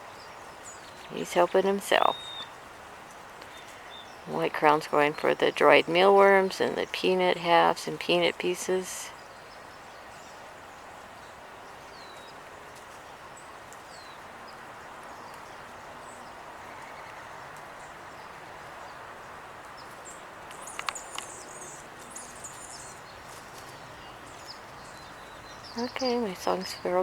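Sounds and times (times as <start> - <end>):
outdoor background hiss: 0.0 - 27.0
songbirds chirping: 0.0 - 27.0
sharp clicks: 20.5 - 21.4.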